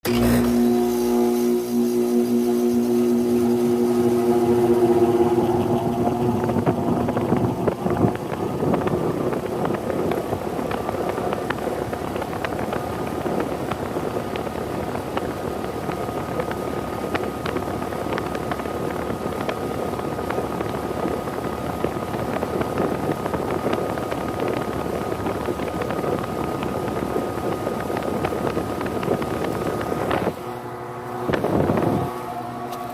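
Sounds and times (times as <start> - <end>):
heat pump running hum: 0.0 - 32.9.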